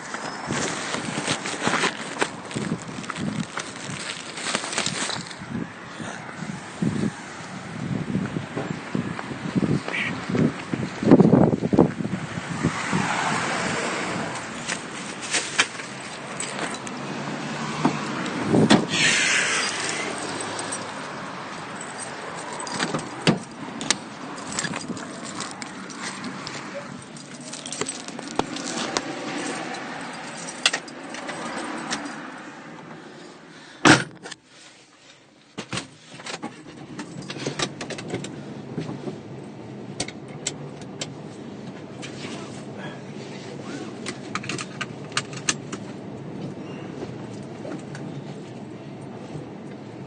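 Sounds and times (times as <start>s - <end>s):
passing cars: 0.0s - 34.3s, 35.9s - 50.0s
clicks and rattles of handling: 21.8s - 32.2s.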